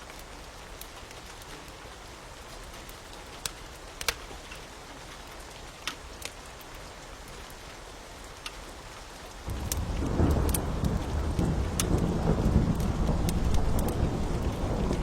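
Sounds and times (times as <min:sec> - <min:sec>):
steady rain: 0:00.0 - 0:15.0
wood fire crackling: 0:02.6 - 0:07.6, 0:08.3 - 0:15.0
thunder rumbling: 0:09.5 - 0:15.0.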